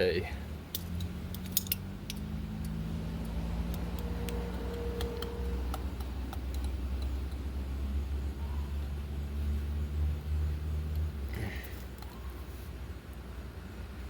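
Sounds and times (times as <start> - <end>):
steady low hum: 0.0 - 14.0
small objects clicking and tapping: 0.7 - 7.5.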